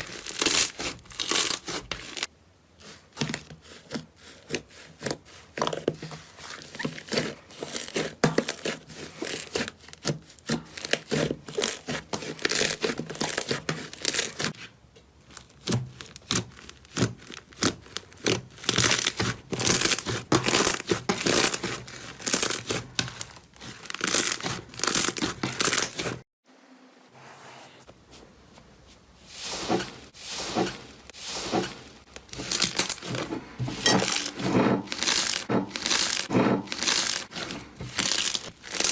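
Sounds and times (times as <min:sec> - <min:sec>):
slime crackling and popping: 0:00.0 - 0:02.2, 0:34.9 - 0:37.3, 0:37.9 - 0:38.9.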